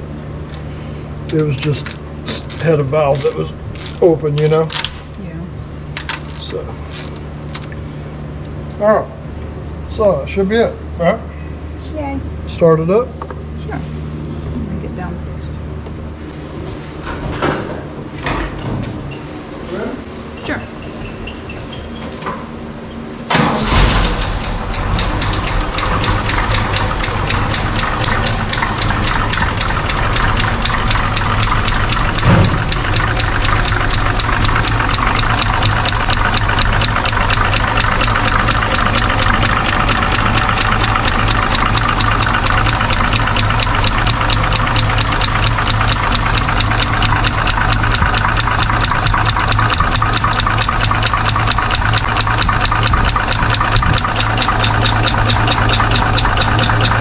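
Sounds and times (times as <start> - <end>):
valvetrain ticking: 1.3 - 4.7, 23.4 - 57.0
truck engine idling: 23.3 - 57.0
short thump: 32.2 - 32.6.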